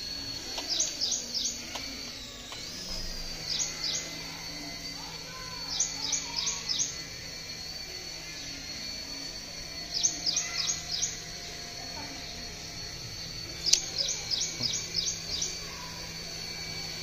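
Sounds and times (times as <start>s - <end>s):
toy helicopter motor whine: 0.0s - 17.0s
bird chirping: 13.6s - 15.6s.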